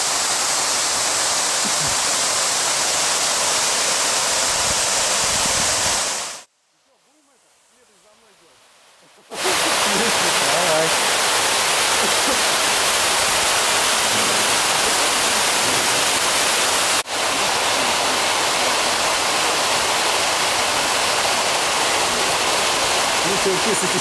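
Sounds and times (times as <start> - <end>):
water pouring through cooling tower: 9.3 - 24.0.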